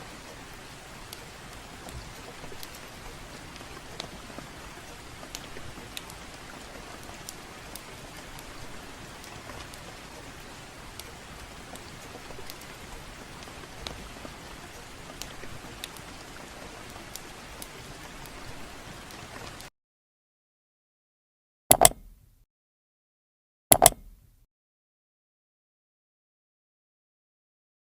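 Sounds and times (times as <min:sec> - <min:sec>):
fireplace crackling: 0:00.0 - 0:19.7
gentle rain: 0:00.0 - 0:19.7.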